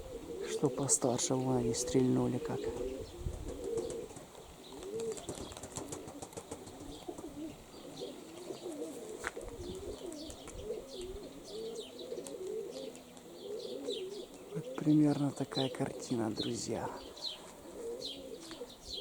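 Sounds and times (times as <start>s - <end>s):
pigeons cooing: 0.0s - 19.0s
small birds chirping: 0.0s - 19.0s
wind rumbling on microphone: 2.6s - 4.1s, 9.3s - 11.4s.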